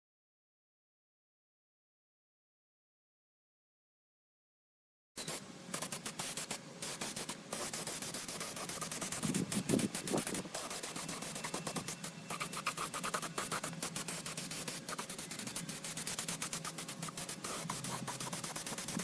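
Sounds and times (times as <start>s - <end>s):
rapid scratching and scraping: 5.2s - 19.0s.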